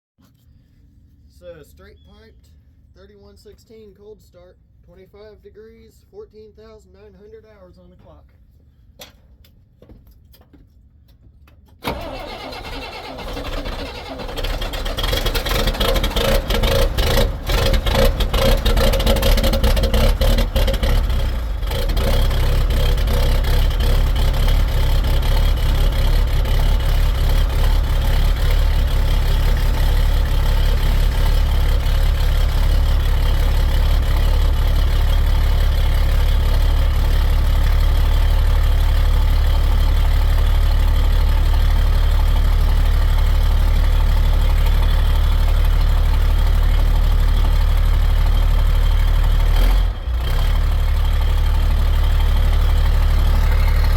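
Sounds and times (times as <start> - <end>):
diesel engine starting and idling: 11.8 - 53.9.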